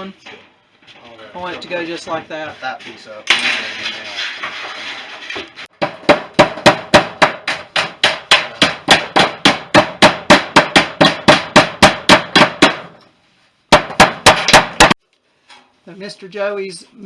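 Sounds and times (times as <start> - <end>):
hammer blows: 5.8 - 13.0, 13.7 - 15.0.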